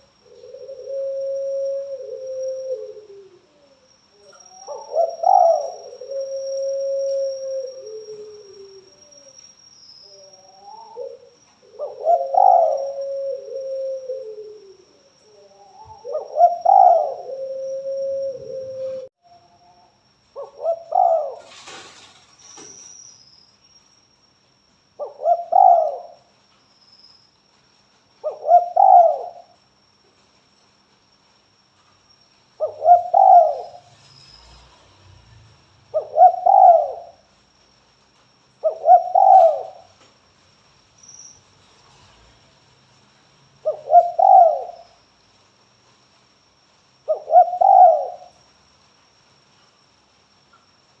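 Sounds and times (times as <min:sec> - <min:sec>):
dove cooing: 0:00.0 - 0:09.3, 0:10.2 - 0:19.1, 0:20.4 - 0:21.9, 0:25.0 - 0:26.2, 0:28.2 - 0:29.5, 0:32.6 - 0:33.9, 0:35.9 - 0:37.2, 0:38.6 - 0:40.0, 0:43.6 - 0:44.9, 0:47.1 - 0:48.4.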